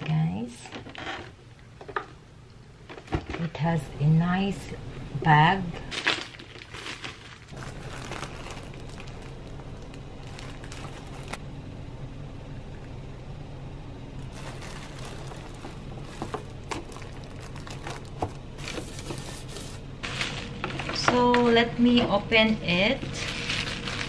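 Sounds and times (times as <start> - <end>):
steady low hum: 0.0 - 24.0
plastic bags rustling: 5.8 - 11.4, 14.2 - 21.6, 23.0 - 24.0.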